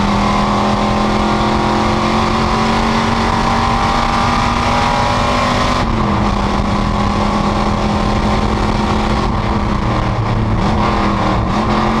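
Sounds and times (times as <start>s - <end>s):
race car engine running: 0.0s - 12.0s.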